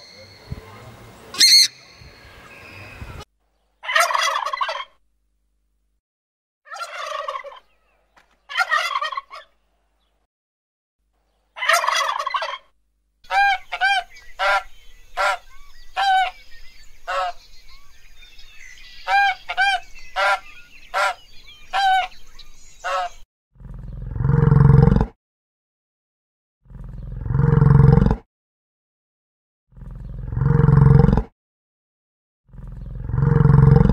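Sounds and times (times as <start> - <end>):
large birds calling: 0.0 - 5.0, 11.5 - 24.0
loud low roar: 23.6 - 25.1, 26.7 - 28.2, 29.7 - 31.2, 32.5 - 33.9.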